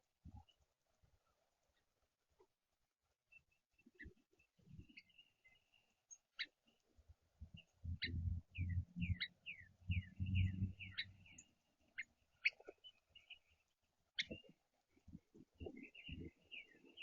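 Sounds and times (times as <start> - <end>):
songbirds chirping: 0.0 - 17.0
low dull bumps and rumbles: 7.5 - 9.2, 9.8 - 11.0.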